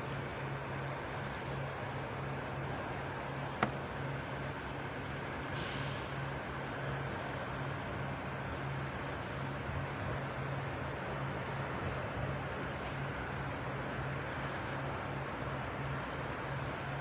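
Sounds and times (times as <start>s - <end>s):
truck idling: 0.0s - 17.0s
short hiss of air: 5.5s - 6.3s.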